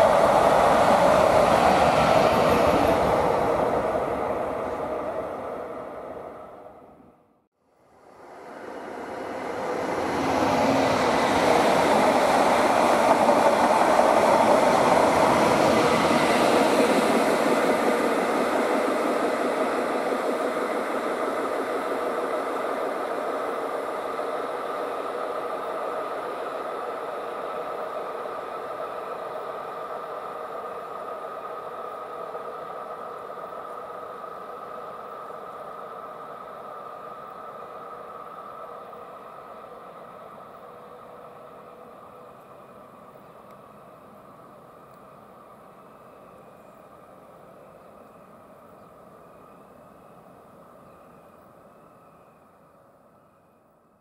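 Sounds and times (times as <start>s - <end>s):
train wheels rumbling on rails: 0.0s - 7.0s, 8.1s - 52.5s
train motor whine: 8.2s - 39.6s.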